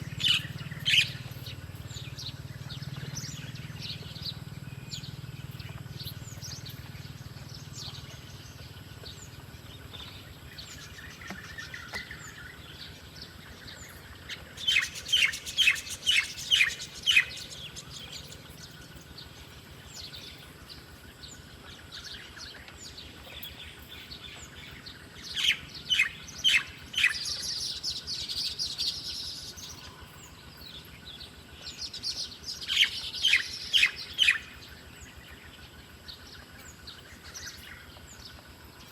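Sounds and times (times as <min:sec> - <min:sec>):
faint scattered bird calls: 0:00.0 - 0:38.9.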